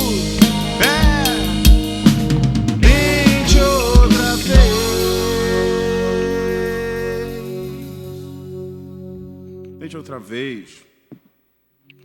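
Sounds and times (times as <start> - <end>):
drum kit hits: 0.0 - 7.5
live reggae rock band: 0.0 - 9.8.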